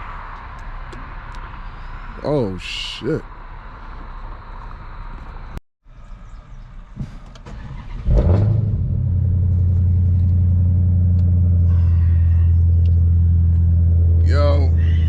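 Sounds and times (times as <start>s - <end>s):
car engine starting and running: 6.9s - 15.0s.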